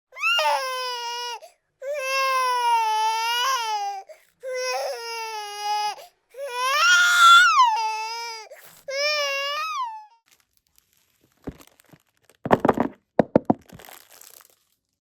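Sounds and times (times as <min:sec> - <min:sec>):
baby-like voice crying: 0:00.1 - 0:10.2.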